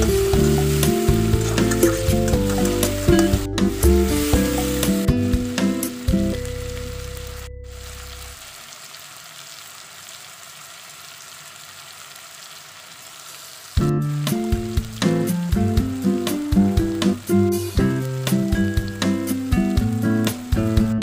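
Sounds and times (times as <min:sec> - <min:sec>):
background music: 0:00.0 - 0:07.9, 0:13.8 - 0:21.0
food sizzling in oil: 0:00.0 - 0:21.0.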